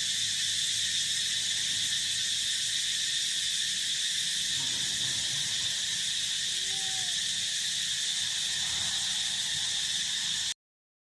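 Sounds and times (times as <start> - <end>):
chorus of field insects: 0.0 - 10.6
faint brief call: 6.6 - 7.2.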